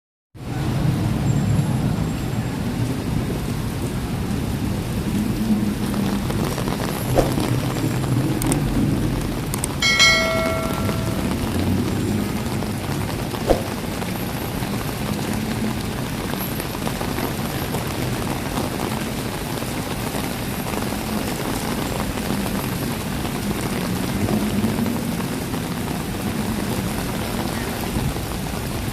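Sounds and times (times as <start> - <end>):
low rumble of traffic: 0.4 - 28.9
steady rain falling: 0.4 - 28.9
sharp knock: 7.2 - 7.5, 9.8 - 11.5, 13.5 - 13.9.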